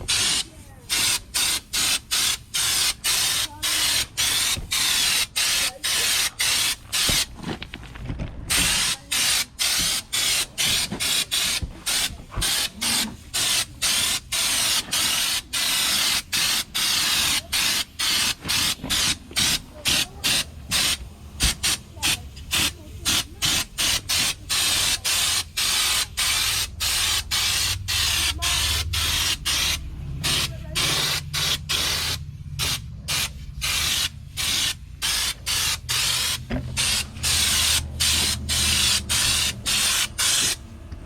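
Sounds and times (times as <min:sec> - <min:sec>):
spray gun hissing in bursts: 0:00.0 - 0:07.4, 0:08.5 - 0:40.8.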